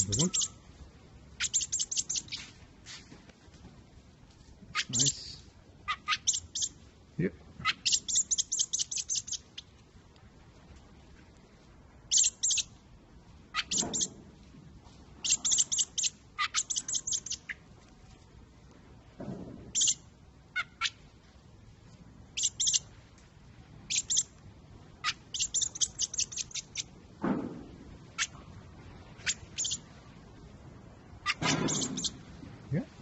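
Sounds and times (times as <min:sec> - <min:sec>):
young bird chirping: 0:00.0 - 0:00.6, 0:01.4 - 0:02.5, 0:04.7 - 0:06.8, 0:07.6 - 0:09.7, 0:12.1 - 0:12.8, 0:13.5 - 0:14.2, 0:15.2 - 0:17.6, 0:19.7 - 0:20.0, 0:22.4 - 0:22.9, 0:23.9 - 0:24.4, 0:25.0 - 0:27.0, 0:28.1 - 0:28.4, 0:29.2 - 0:29.9, 0:31.2 - 0:32.2.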